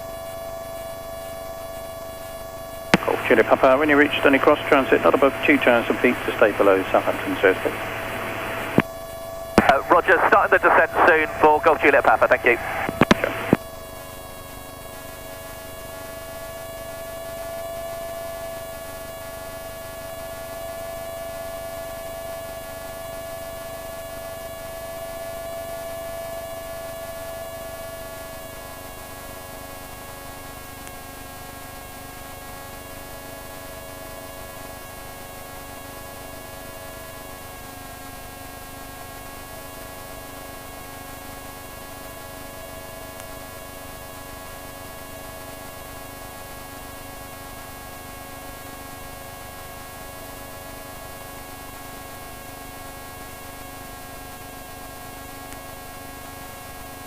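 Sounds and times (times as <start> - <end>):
microlight engine droning: 3.0 - 8.8.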